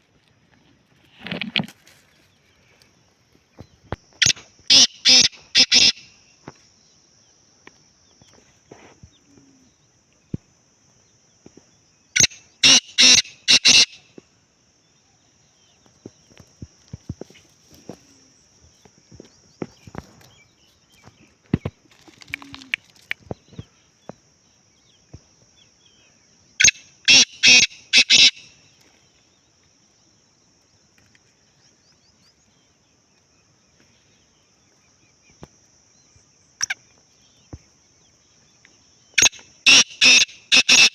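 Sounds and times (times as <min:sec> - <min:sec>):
bird harsh grating call: 0:04.2 - 0:06.1, 0:12.2 - 0:14.0, 0:26.6 - 0:28.4, 0:39.2 - 0:40.9.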